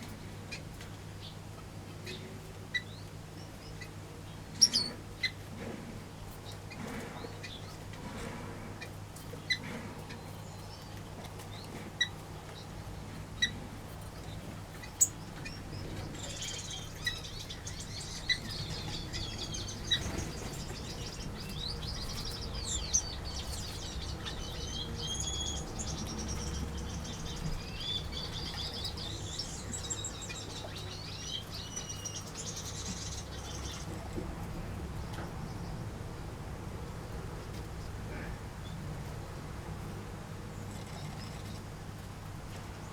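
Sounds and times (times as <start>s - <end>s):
birds twittering: 2.0s - 5.4s, 14.2s - 34.0s.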